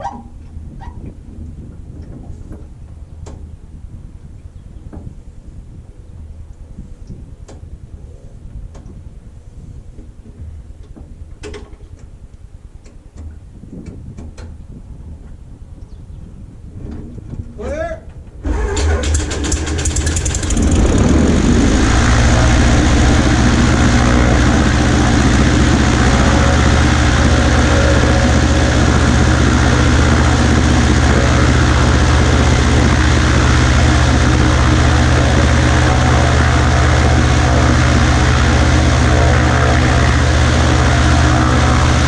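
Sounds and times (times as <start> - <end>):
small plane engine starting: 18.4 - 42.0.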